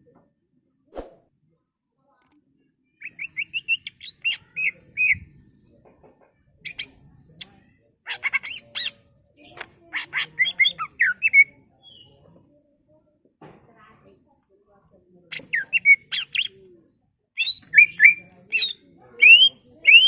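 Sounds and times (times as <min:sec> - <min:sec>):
bird singing whistles and chirps: 0:17.4 - 0:20.0.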